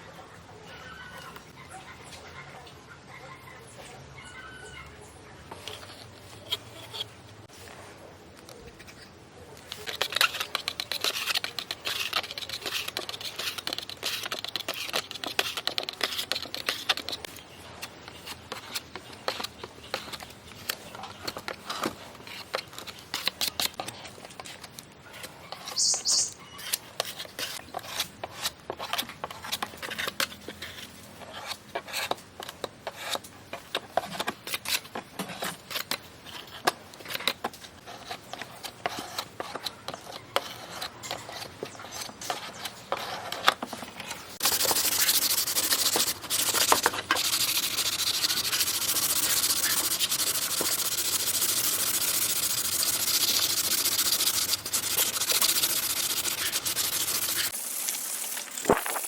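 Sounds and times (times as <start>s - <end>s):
sanding strokes: 44.4s - 57.6s.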